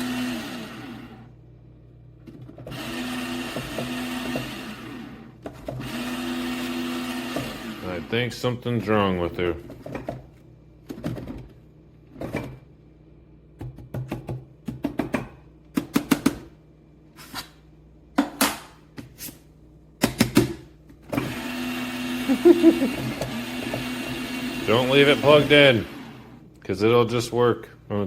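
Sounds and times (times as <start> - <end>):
grinder motor running: 0.0 - 1.3, 2.6 - 8.2, 21.2 - 26.3.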